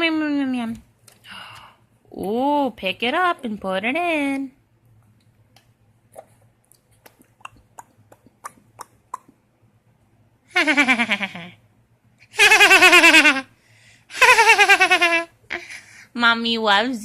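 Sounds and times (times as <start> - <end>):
soft mouth clicks: 5.6 - 9.5.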